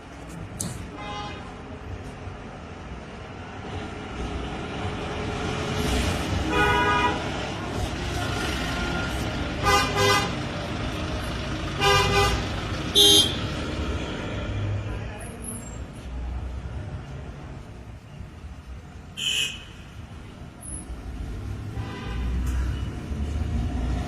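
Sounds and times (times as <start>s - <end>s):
vehicle horns honking: 6.4s - 7.2s, 8.8s - 10.4s, 11.8s - 13.4s, 19.2s - 19.9s
engine rumble: 7.3s - 19.1s.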